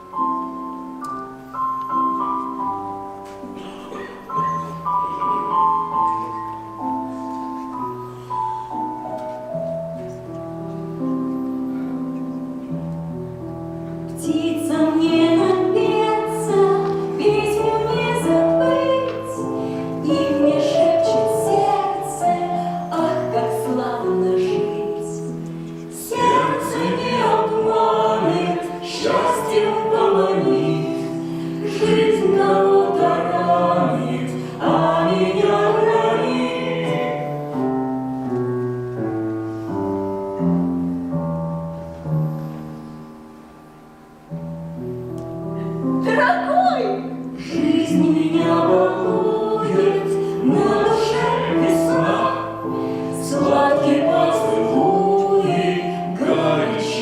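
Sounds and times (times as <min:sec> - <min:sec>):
choir singing slowly: 0:14.2 - 0:38.3, 0:47.3 - 0:57.0.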